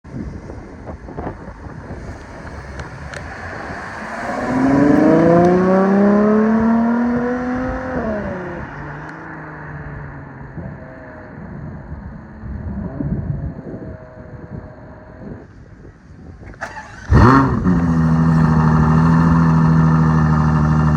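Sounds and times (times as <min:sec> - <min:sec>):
car engine accelerating: 0:01.2 - 0:15.5, 0:16.4 - 0:20.9.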